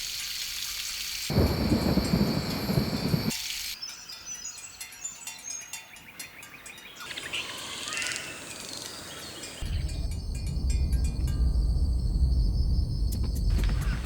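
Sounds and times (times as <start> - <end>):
birds chirping and calling: 3.8 - 10.2
low deep sound: 9.6 - 13.9.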